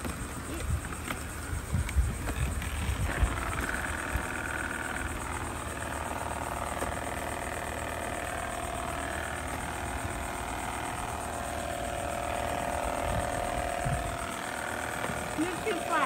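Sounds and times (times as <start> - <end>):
robot vacuums whirring: 0.0 - 16.0.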